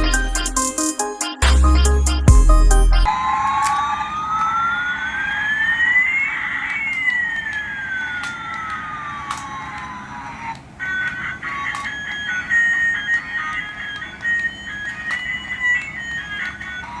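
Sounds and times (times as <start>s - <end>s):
electronic music: 0.0s - 6.4s
siren-like electronic sweep: 1.4s - 8.2s.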